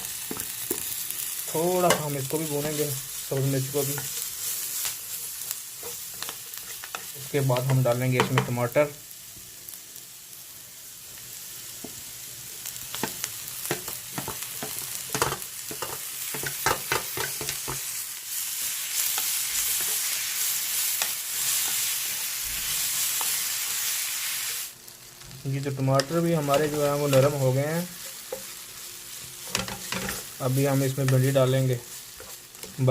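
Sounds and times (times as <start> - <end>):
food sizzling in a pan: 0.0 - 32.9
spoon scraping and knocking a pan: 13.0 - 17.9, 29.4 - 30.4.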